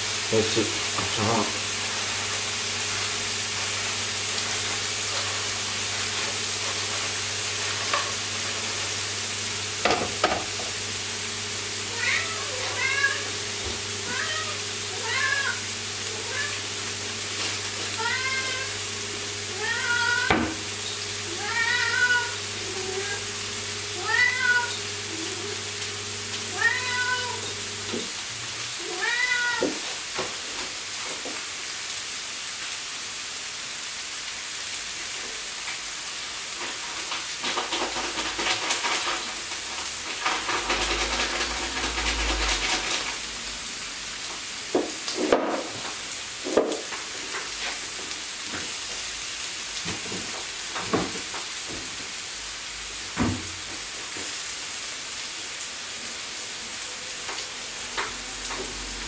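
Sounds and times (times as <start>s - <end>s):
patties sizzling on grill pan: 0.0s - 59.0s
cat meowing: 11.9s - 13.4s, 14.0s - 16.7s, 17.9s - 18.8s, 19.5s - 20.5s, 21.3s - 23.2s, 24.0s - 25.6s, 26.5s - 27.5s, 28.8s - 29.8s.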